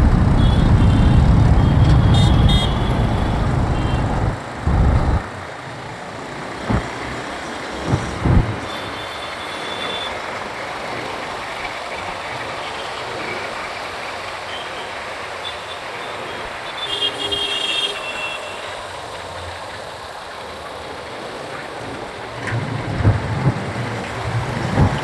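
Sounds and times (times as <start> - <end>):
vehicle horn: 0.0 - 5.2
wind and road noise: 0.0 - 9.1, 21.8 - 25.0.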